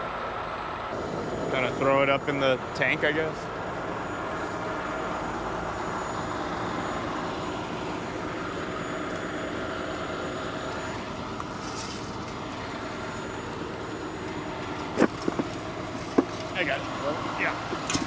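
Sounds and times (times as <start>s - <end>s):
heavy vehicle engine drone: 0.0s - 18.0s.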